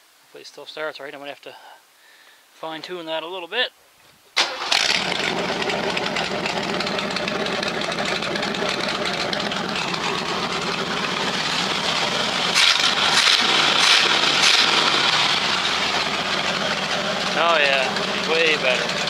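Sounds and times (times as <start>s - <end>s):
car engine running: 4.6s - 19.0s.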